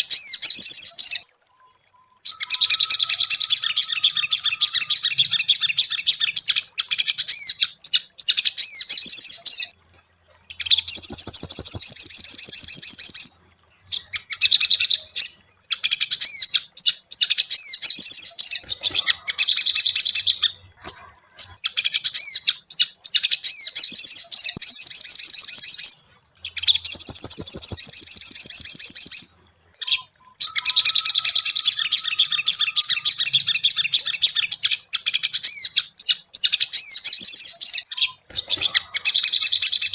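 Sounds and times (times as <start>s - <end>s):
sunbird chirping trills: 0.0s - 39.9s.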